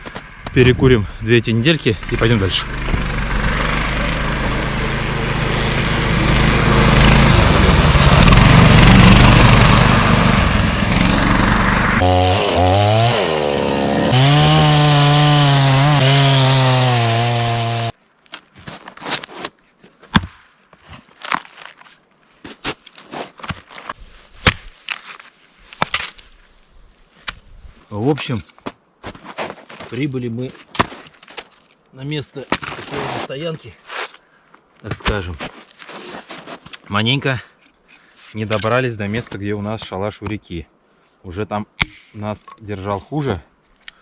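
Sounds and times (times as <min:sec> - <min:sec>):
engine revving: 0:01.9 - 0:17.9.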